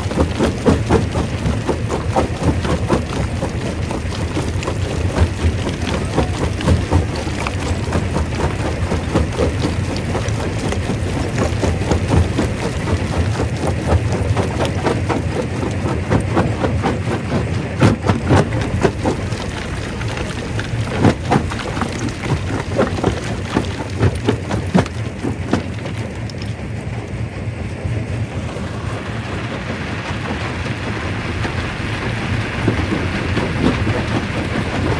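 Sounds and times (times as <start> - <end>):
rock crusher grinding: 0.0 - 26.5
rocks knocking and cracking: 0.0 - 26.6
low machine hum: 0.0 - 34.9.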